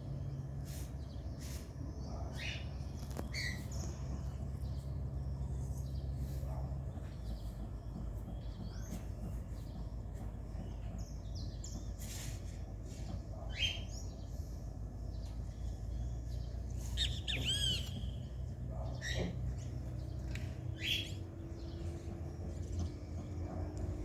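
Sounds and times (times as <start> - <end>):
flycatchers chirping: 0.0 - 23.5
steady low hum: 0.0 - 24.0
bird twittering: 13.5 - 14.3, 15.9 - 21.8.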